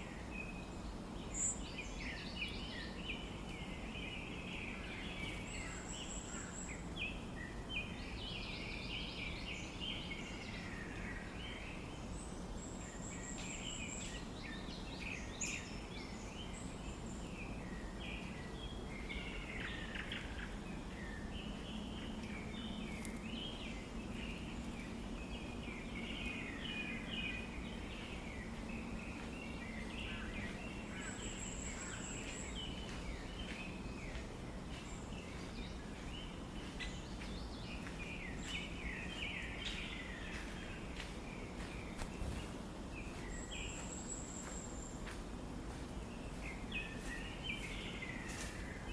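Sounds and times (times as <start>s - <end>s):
steady background hiss: 0.0s - 48.9s
birds chirping and calling: 1.2s - 48.9s.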